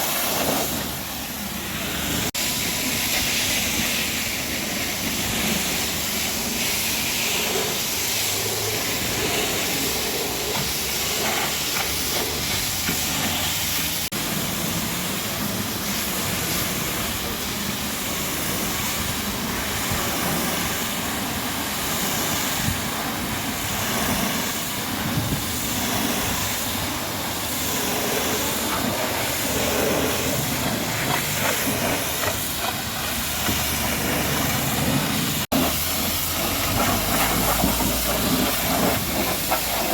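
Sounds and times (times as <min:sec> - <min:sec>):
pressure washer spraying water: 0:00.0 - 0:39.9.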